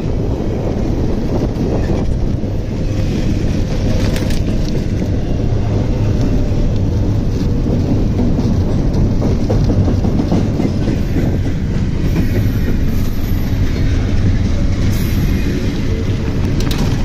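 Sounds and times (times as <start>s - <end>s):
three-wheeler road noise: 0.0s - 11.4s, 12.9s - 17.0s
freight train rumbling past: 0.0s - 17.0s.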